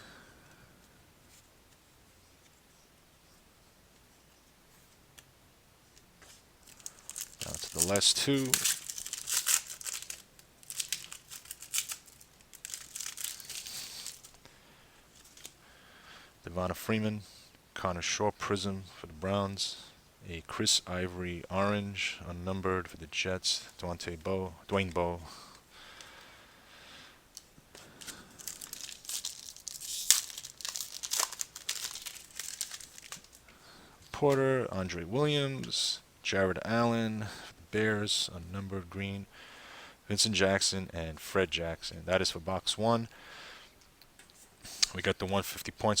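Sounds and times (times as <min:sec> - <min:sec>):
foil wrapper crinkling and tearing: 0:06.6 - 0:14.4, 0:27.9 - 0:33.4.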